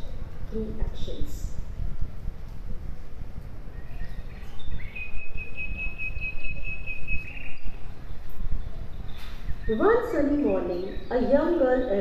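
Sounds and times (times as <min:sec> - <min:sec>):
bird chirps: 0:03.7 - 0:12.0.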